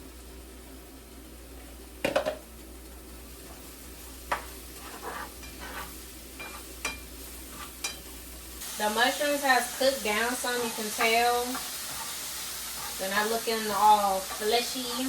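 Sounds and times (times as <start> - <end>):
mushrooms sizzling in a pan: 0.0 - 15.0.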